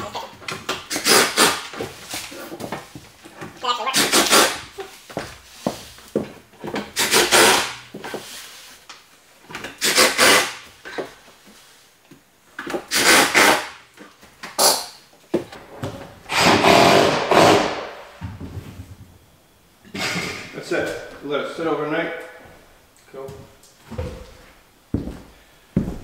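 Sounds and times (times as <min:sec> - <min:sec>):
power drill driving screws into wood: 0:00.9 - 0:01.7, 0:04.0 - 0:04.6, 0:07.0 - 0:07.7, 0:09.8 - 0:10.6, 0:12.9 - 0:13.8, 0:16.3 - 0:18.0.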